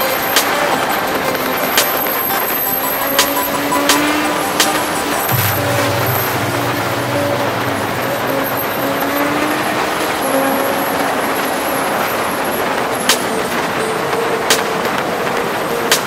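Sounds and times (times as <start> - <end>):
motorcycle engine: 3.0 - 11.5.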